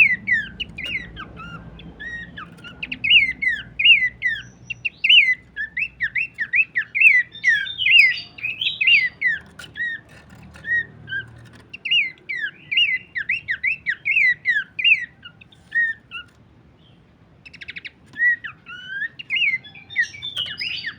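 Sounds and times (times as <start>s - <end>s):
bird whistled calls: 0.0s - 16.3s, 17.5s - 20.9s
buzzy bird rattle: 5.0s - 12.5s.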